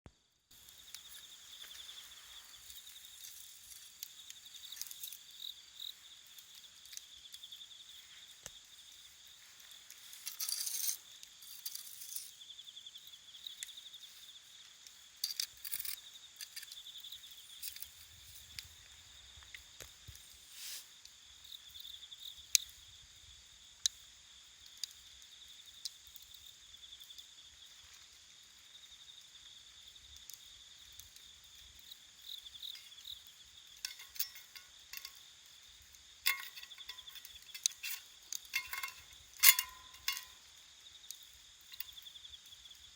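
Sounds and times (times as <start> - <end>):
crickets chirping: 0.1 - 42.9
wood fire crackling and popping: 0.5 - 12.4, 30.1 - 42.1.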